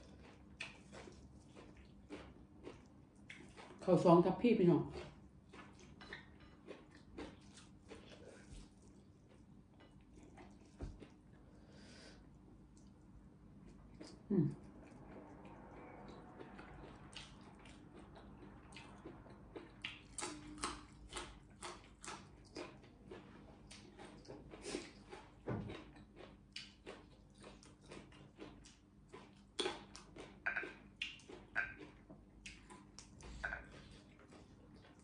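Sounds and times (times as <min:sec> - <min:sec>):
person chewing and smacking lips: 0:00.0 - 0:04.0, 0:04.9 - 0:11.6, 0:12.2 - 0:35.0
person humming: 0:14.3 - 0:14.6.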